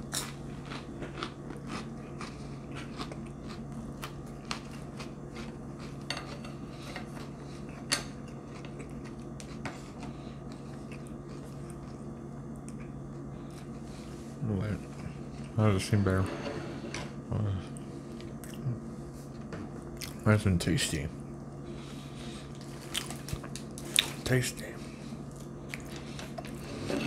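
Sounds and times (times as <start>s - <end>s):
crunchy chewing: 0.0s - 14.2s, 17.7s - 18.9s, 19.9s - 20.2s, 21.7s - 24.2s, 24.9s - 26.9s
steady low hum: 0.0s - 27.0s.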